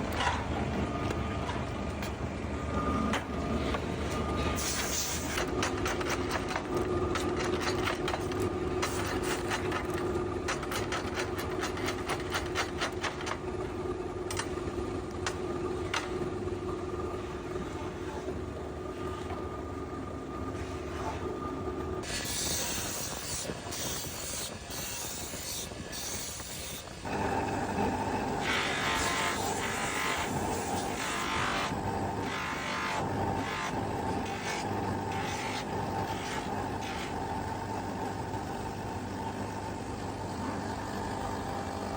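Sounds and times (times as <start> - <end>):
factory machinery humming: 0.0 - 41.9
machinery clicks and ticks: 4.7 - 16.4.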